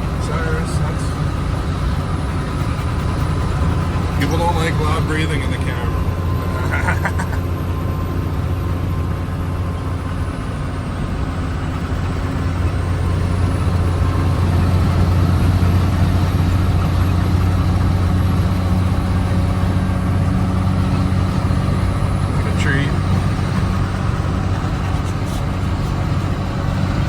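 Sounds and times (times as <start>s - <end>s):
vehicle engine drone: 0.0s - 27.0s.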